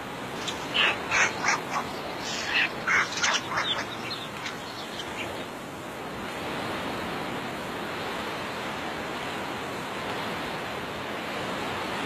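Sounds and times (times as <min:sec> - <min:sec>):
birds calling: 0:00.0 - 0:05.6
steady hiss: 0:00.0 - 0:07.0.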